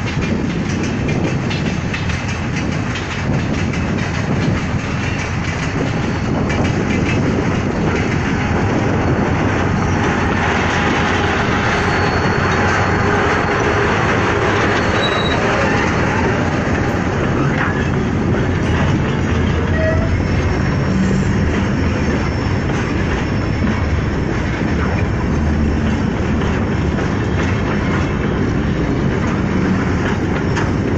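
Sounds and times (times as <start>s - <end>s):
train wheels rumbling on track: 0.0s - 30.9s
faint high squeals: 11.5s - 13.8s, 14.8s - 16.0s.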